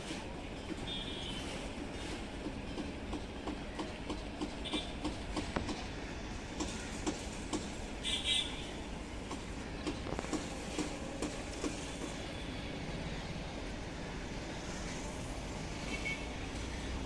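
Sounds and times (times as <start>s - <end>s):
train wheels clicking over rail joints: 0.0s - 12.4s
train rumble: 0.0s - 17.0s.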